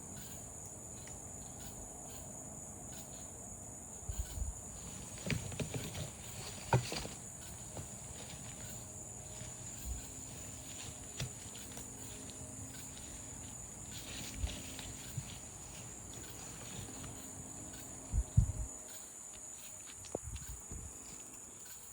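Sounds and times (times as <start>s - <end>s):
cicadas and crickets chorus: 0.0s - 21.9s
soft low thumps: 18.1s - 18.7s.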